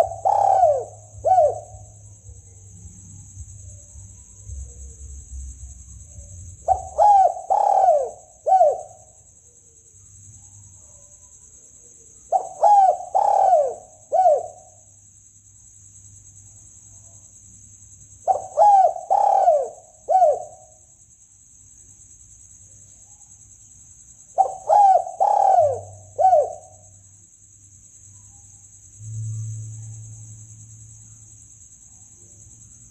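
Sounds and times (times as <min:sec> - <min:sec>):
dove cooing: 0:00.0 - 0:01.9, 0:06.6 - 0:09.0, 0:12.3 - 0:14.7, 0:18.3 - 0:20.6, 0:24.4 - 0:26.8
steady high-pitched hiss: 0:00.0 - 0:32.9.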